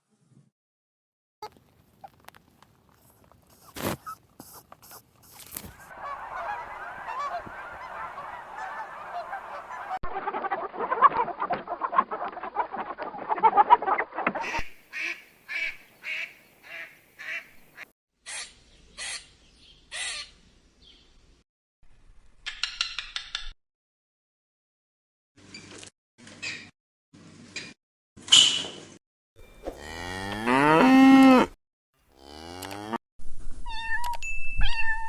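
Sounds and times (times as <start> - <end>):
waterfowl honking calls: 5.6 - 10.8.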